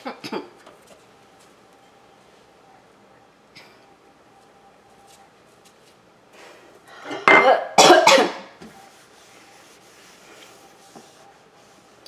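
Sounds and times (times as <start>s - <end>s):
man coughing: 7.1s - 8.4s.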